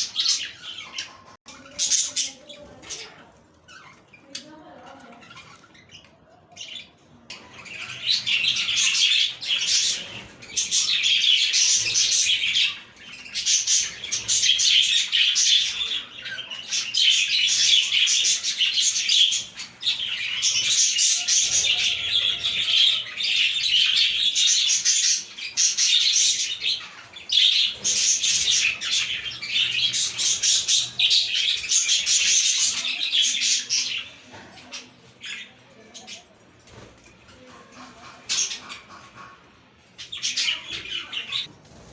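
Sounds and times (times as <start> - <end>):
budgies chattering and warbling: 0.0 - 41.9.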